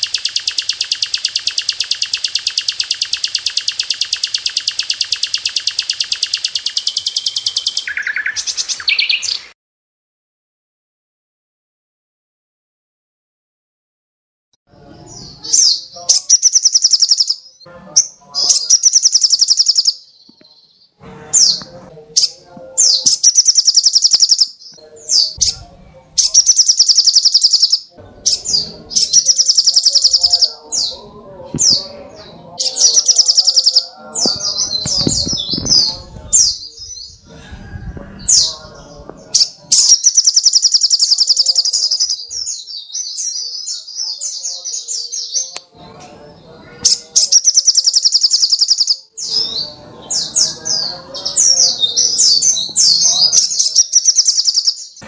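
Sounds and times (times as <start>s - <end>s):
bird high-pitched trills: 0.0s - 9.5s, 15.1s - 20.8s, 21.4s - 25.6s, 26.2s - 37.1s, 39.2s - 43.8s, 46.8s - 55.0s.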